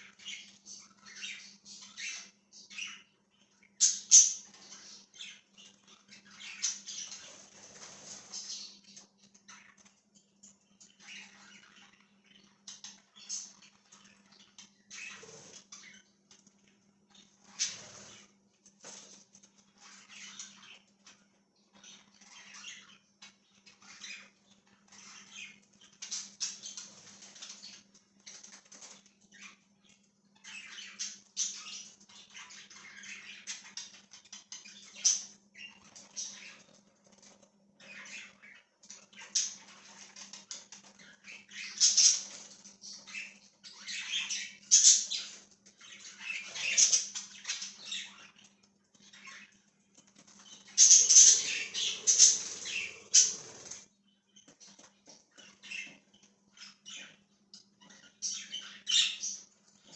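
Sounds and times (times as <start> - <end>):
budgies chirping and chattering: 0.0 - 59.9.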